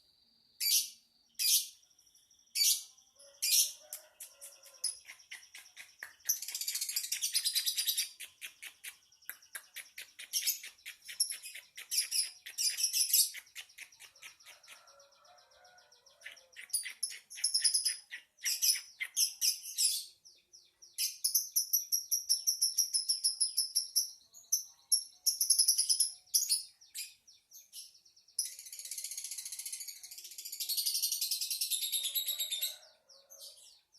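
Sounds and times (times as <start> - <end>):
bird chattering chirps and trills: 2.6 - 27.3.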